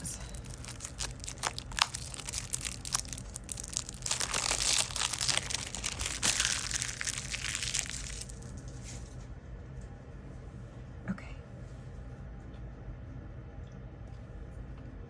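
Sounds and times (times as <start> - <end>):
plastic wrapping crinkling: 0.3 - 8.6.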